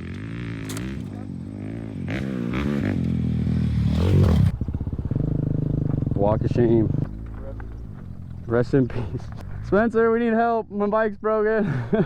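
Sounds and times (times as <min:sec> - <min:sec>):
two-stroke motorbike engine revving: 0:00.0 - 0:08.3.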